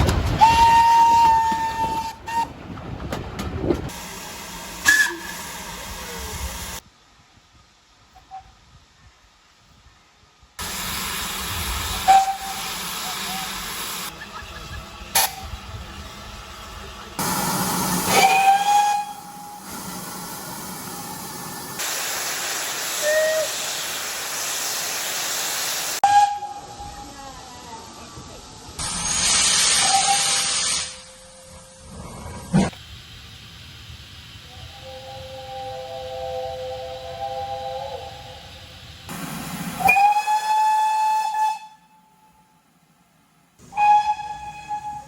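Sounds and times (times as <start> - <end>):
steam locomotive hissing: 0.1 - 6.9, 7.5 - 42.6, 43.6 - 45.0
locomotive whistle toots: 0.3 - 2.5, 4.8 - 6.0, 11.9 - 15.6, 17.2 - 19.9, 23.0 - 23.7, 26.0 - 27.0, 29.7 - 31.6, 34.5 - 38.6, 39.8 - 42.5, 43.6 - 45.0.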